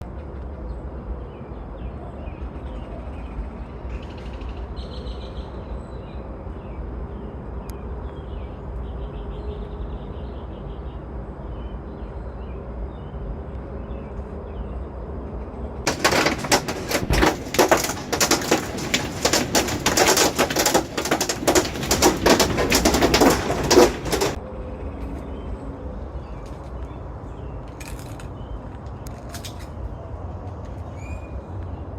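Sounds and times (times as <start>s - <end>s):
rough crackling rustle: 15.9s - 24.4s.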